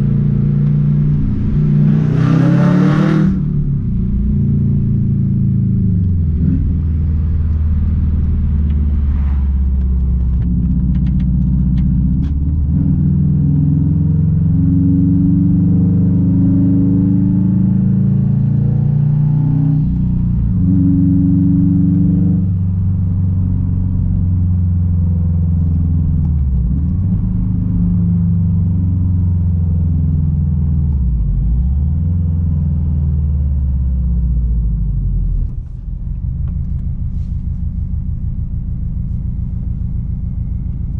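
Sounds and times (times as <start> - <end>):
loud car exhaust drone: 0.0 - 40.9.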